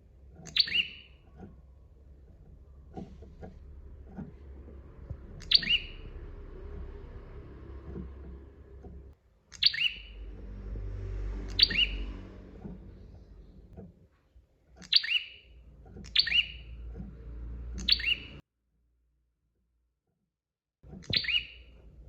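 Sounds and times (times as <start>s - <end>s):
low steady rumble: 0.0s - 14.8s, 15.4s - 18.4s
bird sharp call notes: 11.5s - 12.2s.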